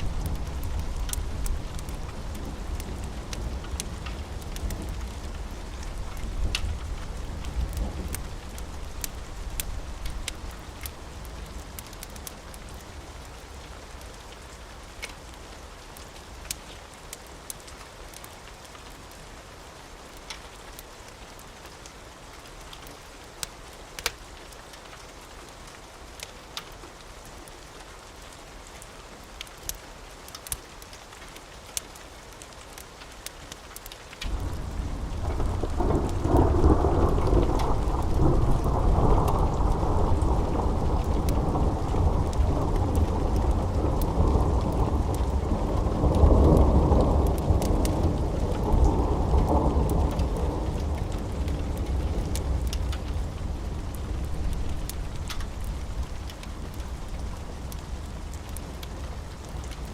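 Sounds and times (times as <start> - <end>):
steady rain: 0.0 - 59.9
deep roll of thunder: 34.3 - 58.3.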